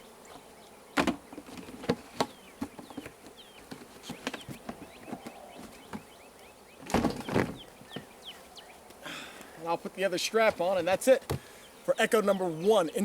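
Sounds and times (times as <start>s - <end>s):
honey bees buzzing: 0.0s - 13.0s
knocks and clicks of wooden hive parts: 1.0s - 6.1s
bird chirps: 2.3s - 8.9s.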